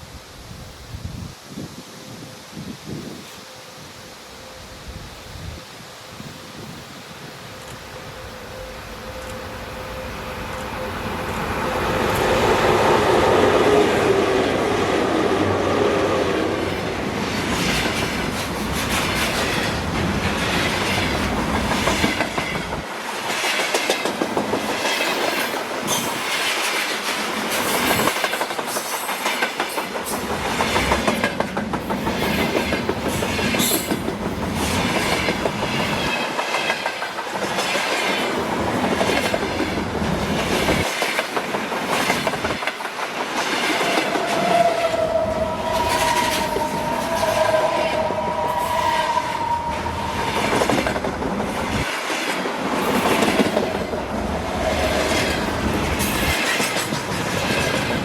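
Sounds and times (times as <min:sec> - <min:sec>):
train rumble: 0:06.5 - 0:58.0
train wheels clattering on rails: 0:12.1 - 0:48.2, 0:49.4 - 0:58.0.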